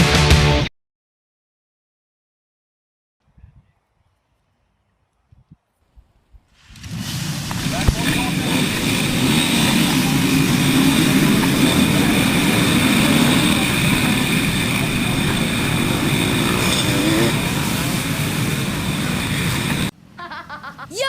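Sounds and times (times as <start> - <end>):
rushing noise: 6.6 - 20.8
dirt bike engine running: 6.8 - 19.9.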